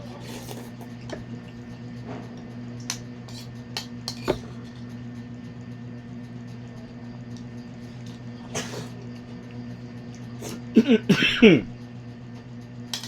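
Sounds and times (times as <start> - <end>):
steady low hum: 0.0 - 13.0
spoon and dishes clinking: 2.9 - 4.9.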